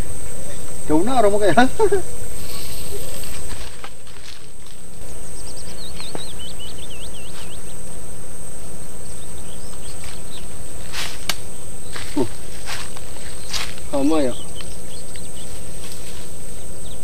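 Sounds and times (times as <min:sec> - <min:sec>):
insects buzzing: 0:00.0 - 0:17.0
small bird chirping: 0:05.0 - 0:08.1, 0:08.9 - 0:17.0.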